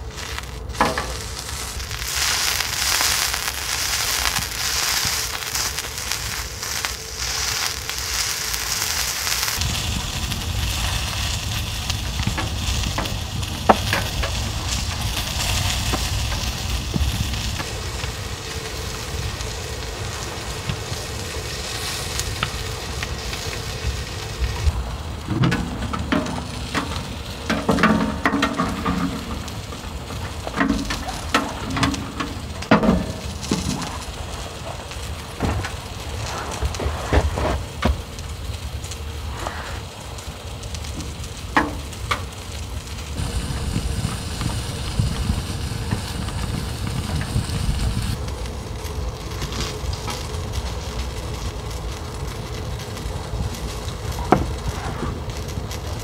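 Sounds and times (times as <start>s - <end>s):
food sizzling in a frying pan: 0.0s - 35.1s, 40.4s - 56.0s
knocks and scrapes: 24.6s - 38.2s.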